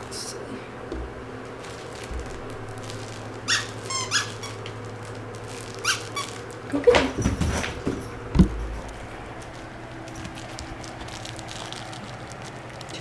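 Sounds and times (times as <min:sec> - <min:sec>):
squeaky dog toy squeaking: 0:03.5 - 0:04.6, 0:05.8 - 0:06.4.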